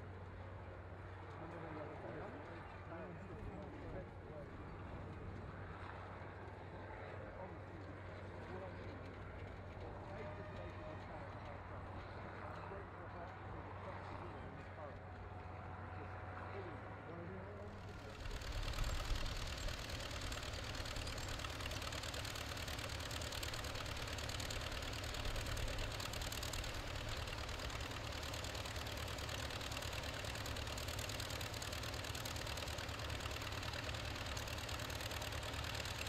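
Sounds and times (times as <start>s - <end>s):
tractor engine running: 17.6s - 36.0s.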